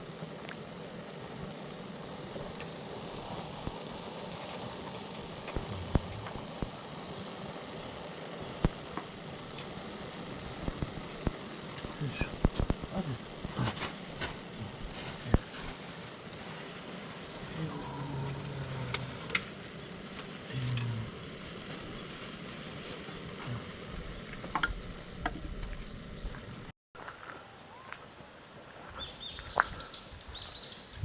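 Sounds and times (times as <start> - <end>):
campfire crackling and sizzling: 0.0 - 31.0
sharp pops from fire: 2.4 - 6.9, 8.4 - 17.4, 18.9 - 23.5.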